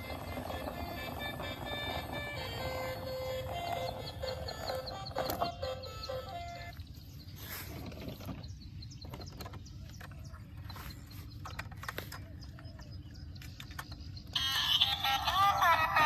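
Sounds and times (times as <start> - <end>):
music: 0.0 - 6.8, 14.4 - 16.0.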